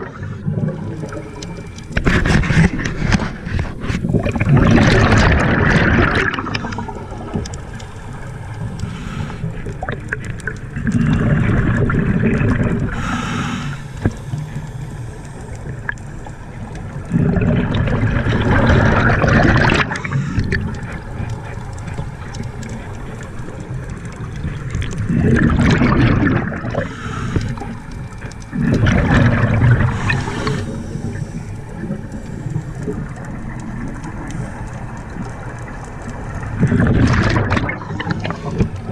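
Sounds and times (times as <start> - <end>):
exhaled bubbles rushing: 0.0 - 13.3, 14.0 - 38.9
underwater hiss: 0.0 - 38.9.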